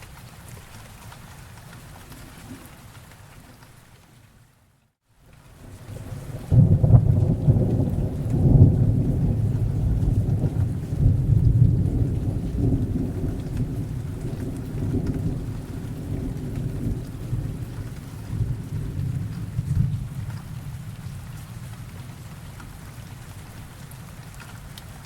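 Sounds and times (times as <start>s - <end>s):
steady rain: 0.0s - 25.0s
thunder rolling: 5.9s - 22.1s.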